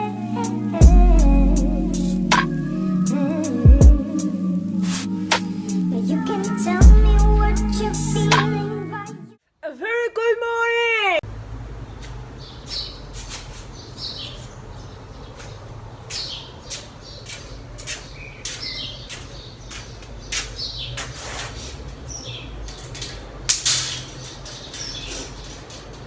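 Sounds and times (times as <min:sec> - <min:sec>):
low steady hum: 0:00.1 - 0:09.0
birds chirping: 0:11.3 - 0:26.0.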